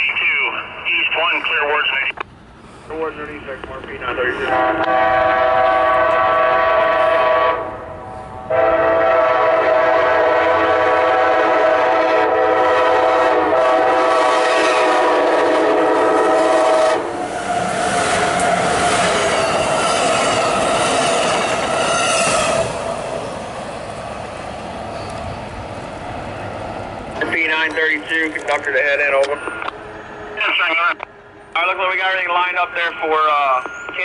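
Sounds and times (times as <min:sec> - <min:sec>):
train rumble: 0:00.0 - 0:34.0
locomotive horn chord: 0:04.4 - 0:07.9, 0:08.5 - 0:17.2.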